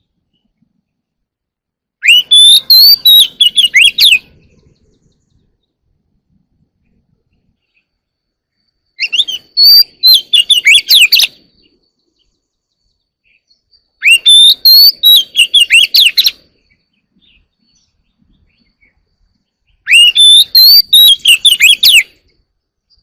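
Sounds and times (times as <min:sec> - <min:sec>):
bird singing whistled phrases: 0:02.0 - 0:05.3, 0:08.9 - 0:12.3, 0:13.2 - 0:19.0, 0:19.7 - 0:22.2.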